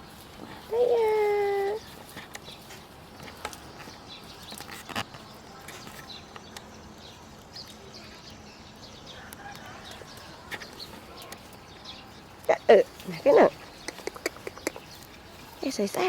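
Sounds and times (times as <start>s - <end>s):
chickens clucking: 9.0s - 16.0s.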